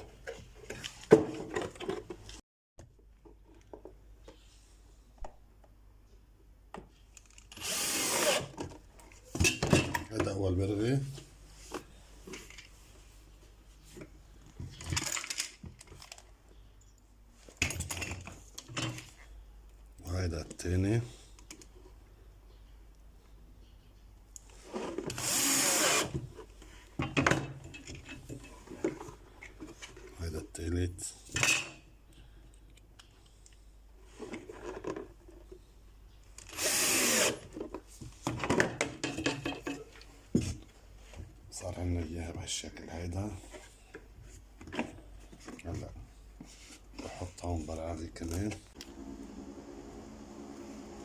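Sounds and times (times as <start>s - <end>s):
handling knocks and rattles: 0.0s - 4.4s, 13.9s - 16.3s
power drill driving a screw: 7.6s - 8.5s, 25.1s - 26.1s, 36.5s - 37.4s.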